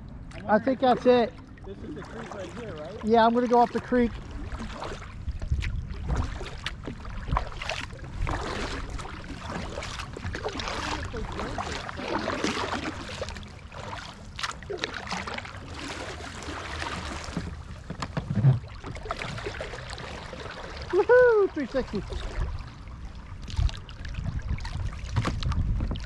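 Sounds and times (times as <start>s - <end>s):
water washing around hull: 0.0s - 26.0s
paddle strokes splashing: 0.3s - 26.0s.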